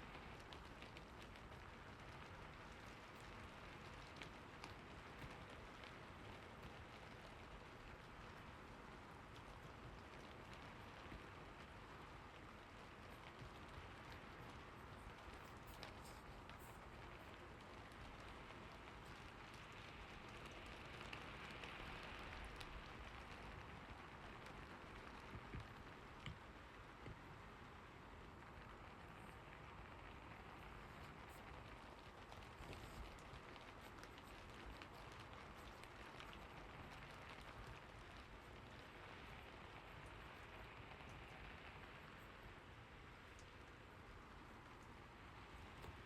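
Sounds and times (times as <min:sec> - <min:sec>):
raindrop ticks: 0:00.0 - 0:46.0
soft rain falling: 0:00.0 - 0:46.0.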